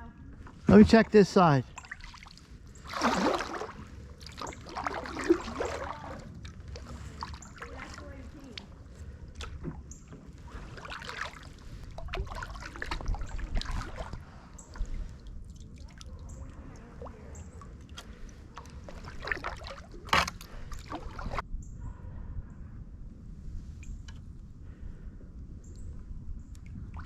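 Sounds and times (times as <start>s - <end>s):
paddle splashing in water: 0.5s - 21.4s.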